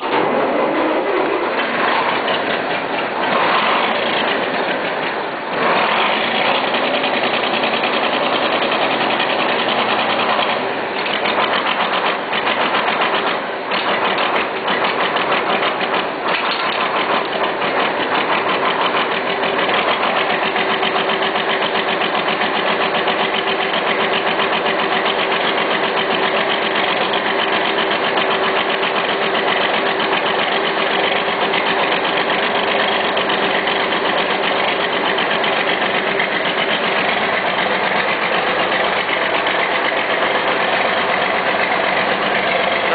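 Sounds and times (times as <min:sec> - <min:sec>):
diesel engine clattering: 0:00.0 - 0:42.9.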